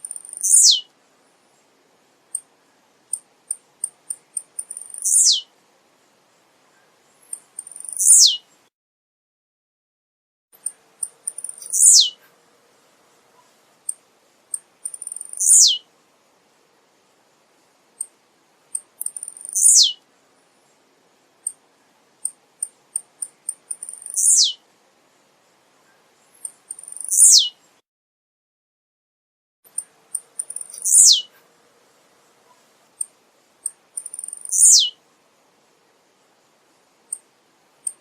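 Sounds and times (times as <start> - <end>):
bird singing: 0.0 - 0.9, 3.8 - 5.5, 6.7 - 8.6, 10.6 - 12.2, 13.8 - 15.8, 19.0 - 20.0, 22.2 - 24.6, 25.8 - 27.7, 29.7 - 31.3, 32.9 - 35.0.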